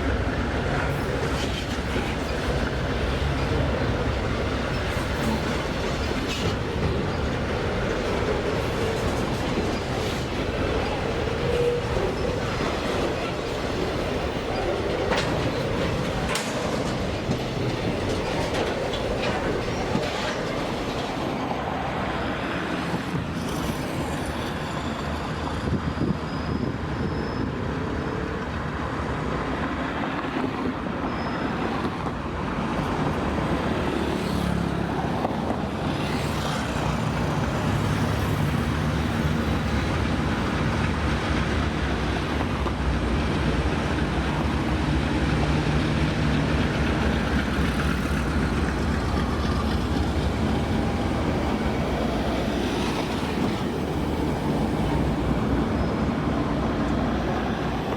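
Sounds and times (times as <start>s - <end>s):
freight train rumbling past: 0.0s - 57.9s
wheels clacking over rails: 0.2s - 21.3s.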